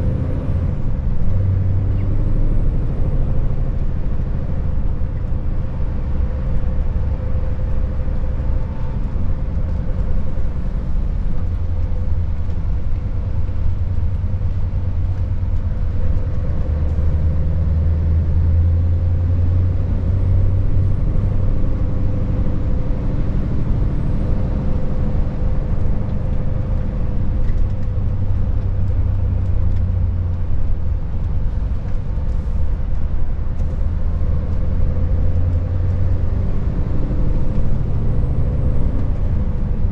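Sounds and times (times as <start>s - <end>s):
road noise: 0.0s - 39.9s
truck diesel engine drone: 0.0s - 39.9s.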